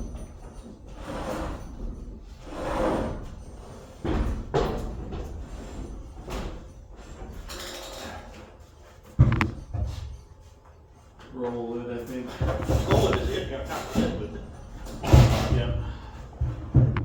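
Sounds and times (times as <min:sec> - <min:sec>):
wooden joists knocking: 0:09.2 - 0:10.0, 0:15.0 - 0:17.0.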